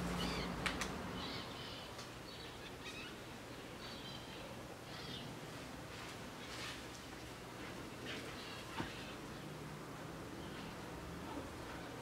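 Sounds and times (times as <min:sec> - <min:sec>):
small birds chirping: 0:00.0 - 0:05.4.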